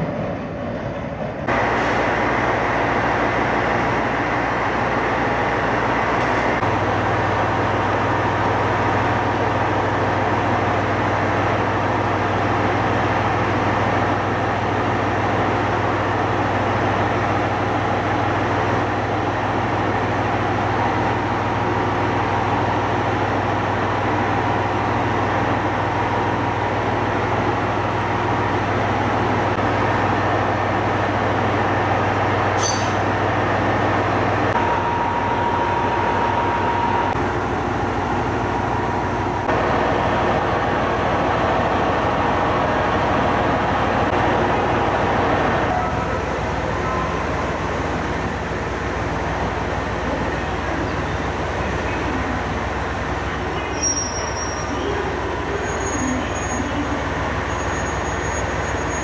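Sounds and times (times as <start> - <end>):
railcar engine idling: 0.0 - 59.0.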